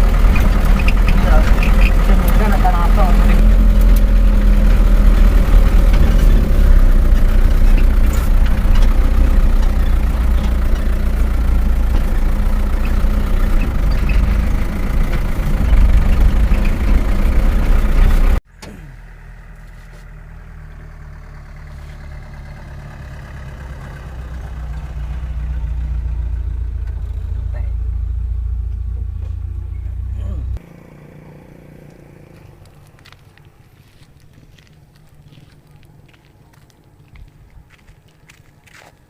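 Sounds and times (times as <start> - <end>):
truck engine rumbling: 0.0 - 39.0.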